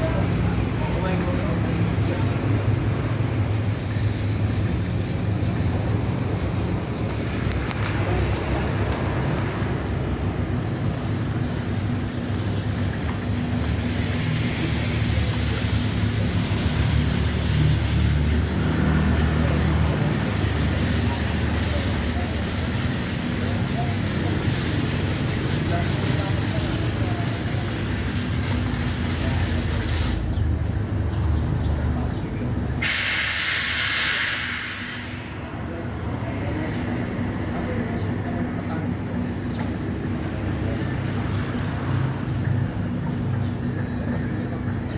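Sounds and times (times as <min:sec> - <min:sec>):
pressure washer spray hiss: 0:11.0 - 0:30.3, 0:32.8 - 0:35.4.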